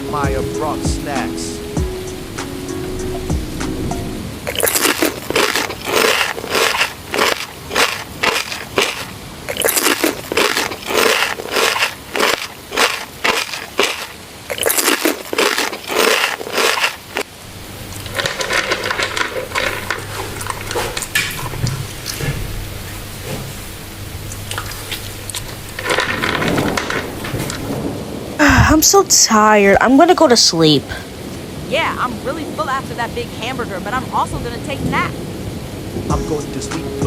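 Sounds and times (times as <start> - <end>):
low hum: 0.0 - 13.7, 15.3 - 29.0
crunchy food chewing: 4.5 - 27.9.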